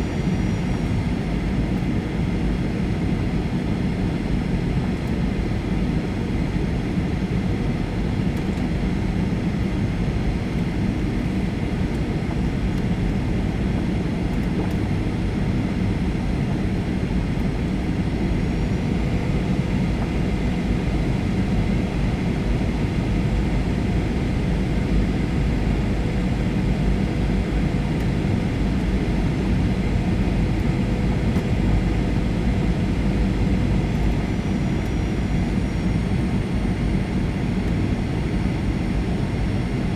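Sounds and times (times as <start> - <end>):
jet engines droning: 0.0 - 39.9
rushing airflow in aircraft cabin: 0.0 - 39.9
faint steady whine: 10.0 - 39.9.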